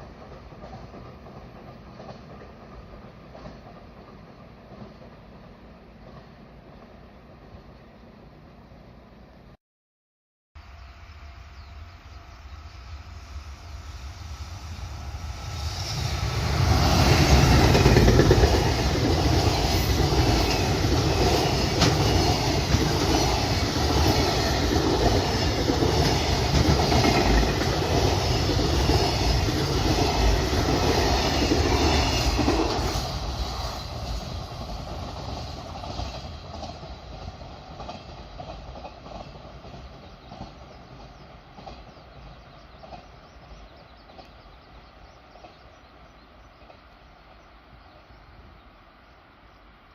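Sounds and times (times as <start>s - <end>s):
freight train passing: 0.0s - 9.6s, 10.6s - 49.9s.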